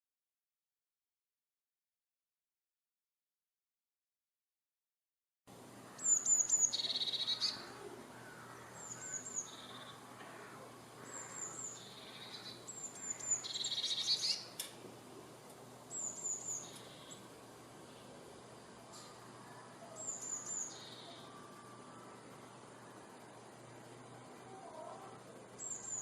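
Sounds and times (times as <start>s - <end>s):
songbird singing: 5.6s - 26.0s.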